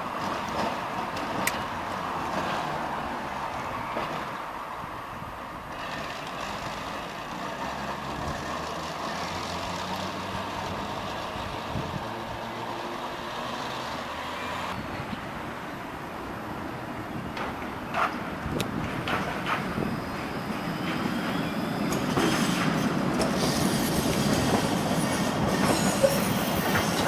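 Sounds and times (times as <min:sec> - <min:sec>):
tram rumbling on track: 0:00.0 - 0:27.0.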